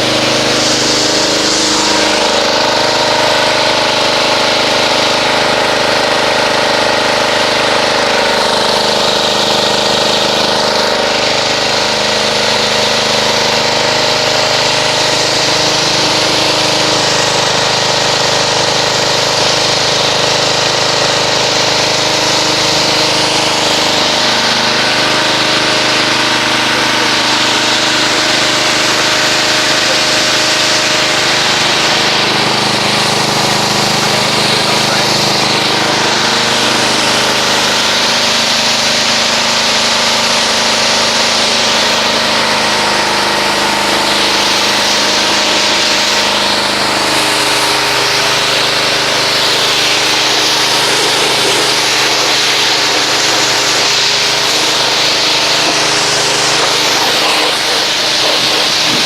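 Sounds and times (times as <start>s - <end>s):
pressure washer motor drone: 0.0s - 59.0s
water spray hissing: 47.2s - 59.0s.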